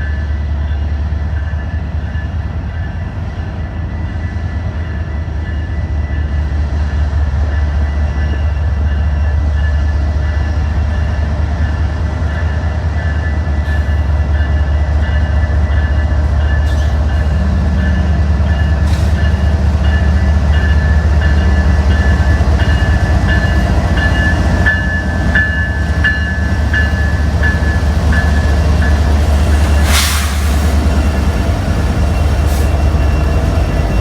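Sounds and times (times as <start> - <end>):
diesel train rumbling: 0.0 - 34.0
short sharp hiss: 29.8 - 30.8.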